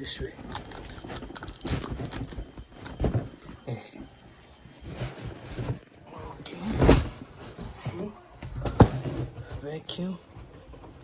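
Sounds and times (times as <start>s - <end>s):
cardboard scraping: 0.7s - 11.0s
cardboard box rustling and knocking: 1.0s - 3.6s, 6.6s - 9.7s.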